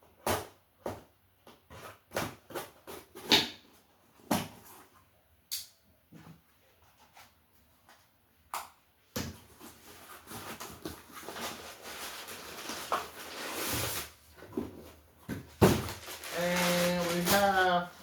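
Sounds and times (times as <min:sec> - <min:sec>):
packaging rustling and scraping: 0:09.4 - 0:18.0.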